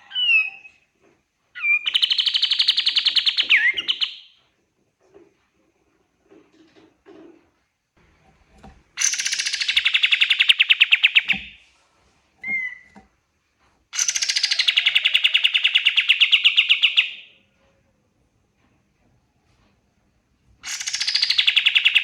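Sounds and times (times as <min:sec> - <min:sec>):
bird chirp: 0:00.0 - 0:00.8, 0:01.6 - 0:04.4, 0:09.0 - 0:11.6, 0:12.4 - 0:13.0, 0:13.9 - 0:17.4, 0:20.6 - 0:22.0
bird trilling: 0:14.0 - 0:17.1.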